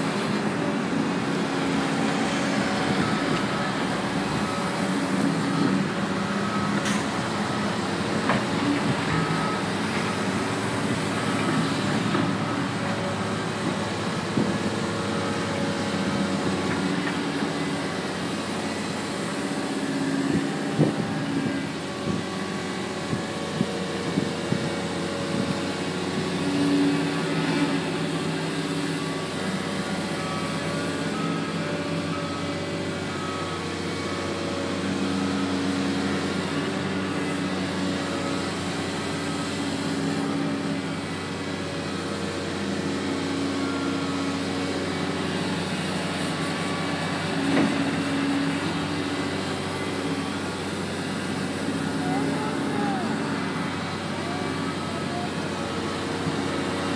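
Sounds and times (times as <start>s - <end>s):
diesel backhoe running: 0.0s - 56.9s
reversing beeper: 1.9s - 14.0s, 48.3s - 56.5s.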